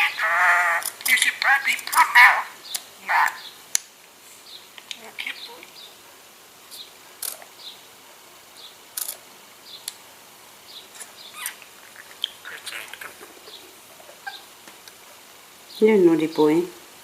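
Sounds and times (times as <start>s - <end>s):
sharp clicks: 7.2s - 7.5s
budgerigar chirping: 11.0s - 14.5s.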